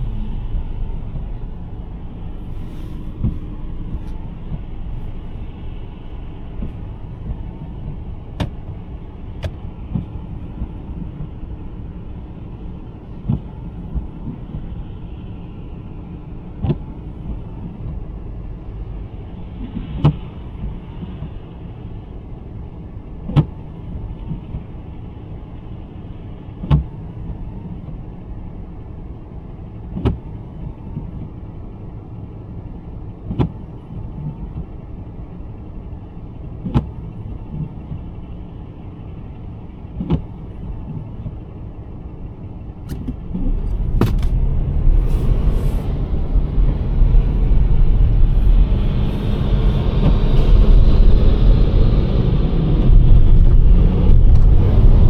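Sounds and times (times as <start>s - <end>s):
car cabin road rumble: 0.0s - 55.0s
windshield wiper clicks: 8.3s - 10.2s, 42.8s - 44.6s.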